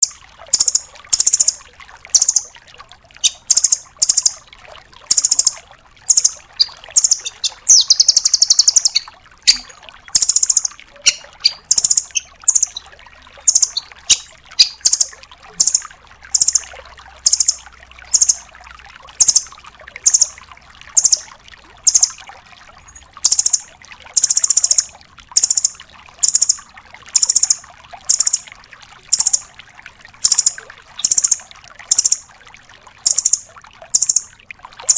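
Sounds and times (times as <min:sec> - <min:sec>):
nuthatch high trilled calls: 0:00.0 - 0:01.6, 0:02.2 - 0:02.4, 0:03.2 - 0:04.4, 0:05.1 - 0:12.8, 0:13.4 - 0:18.4, 0:19.2 - 0:20.3, 0:21.0 - 0:21.2, 0:21.9 - 0:22.2, 0:22.9 - 0:23.6, 0:24.2 - 0:26.6, 0:27.2 - 0:28.4, 0:29.1 - 0:29.4, 0:30.2 - 0:32.2, 0:33.0 - 0:34.2.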